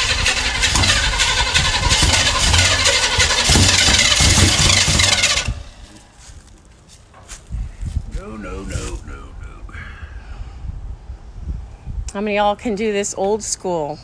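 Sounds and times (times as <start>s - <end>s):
car engine starting: 0.0s - 6.3s.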